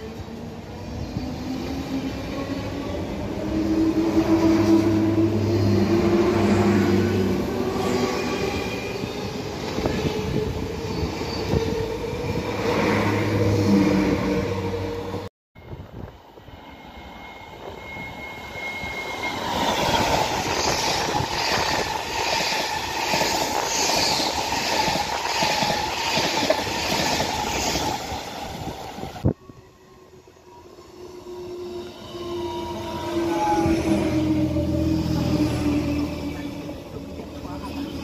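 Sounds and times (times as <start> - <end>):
rumbling rail noise: 0.0 - 38.0
high wheel squeal: 13.3 - 22.2.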